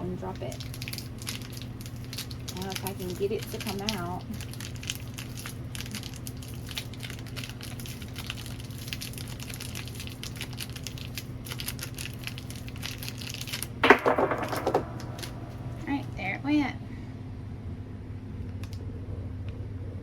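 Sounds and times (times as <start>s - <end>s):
steady low hum: 0.0s - 20.0s
plastic wrapper crinkling: 0.3s - 13.8s.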